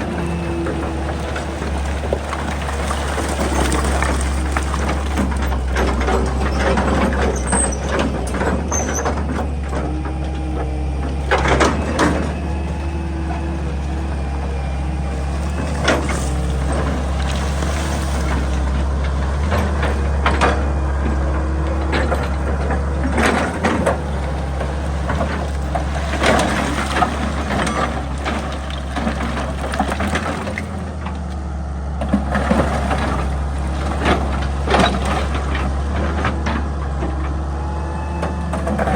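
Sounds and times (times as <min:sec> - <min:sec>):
bucket scraping and knocking rock: 0:00.0 - 0:09.9
excavator diesel engine running: 0:00.0 - 0:38.9.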